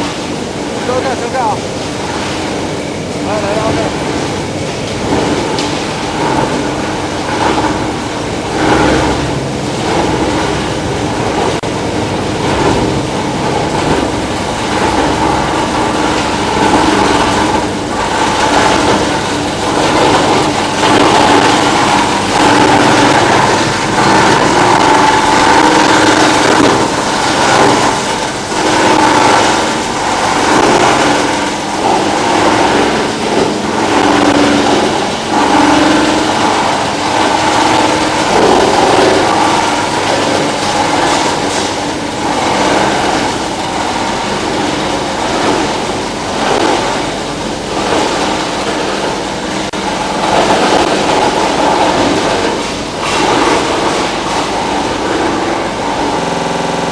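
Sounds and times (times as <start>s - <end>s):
machinery knocking and clatter: 0.0s - 56.9s
machinery motor hum: 0.0s - 56.9s.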